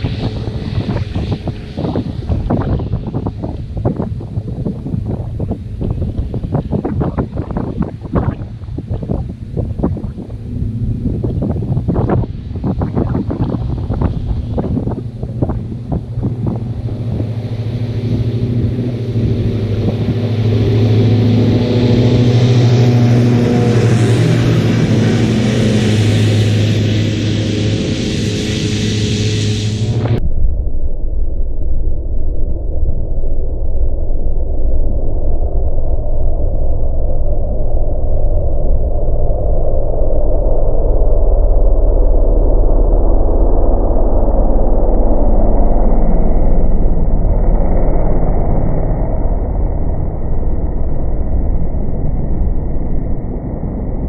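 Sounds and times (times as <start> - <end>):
tractor engine running: 0.0 - 30.2.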